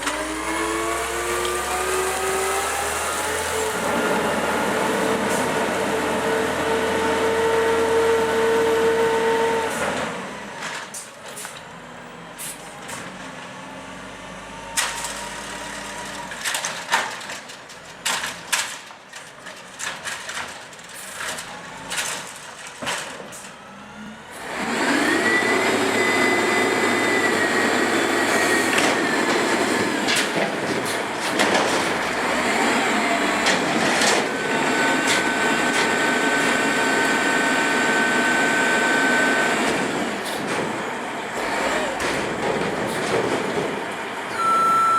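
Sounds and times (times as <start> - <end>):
garbage truck engine and hydraulics: 0.0 - 44.9
clanks and knocks: 28.8 - 32.2, 42.0 - 44.0.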